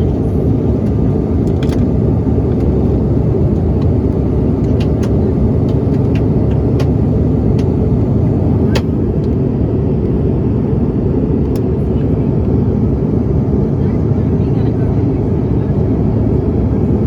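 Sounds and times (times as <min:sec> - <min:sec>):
jet cabin engine rumble: 0:00.0 - 0:17.0.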